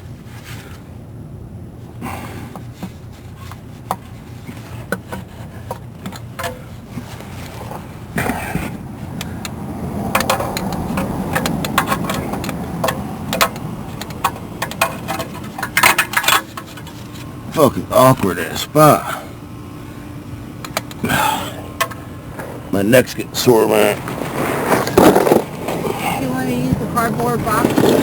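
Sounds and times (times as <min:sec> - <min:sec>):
clicks and knocks of hand tools: 0:04.9 - 0:06.6, 0:08.2 - 0:17.0.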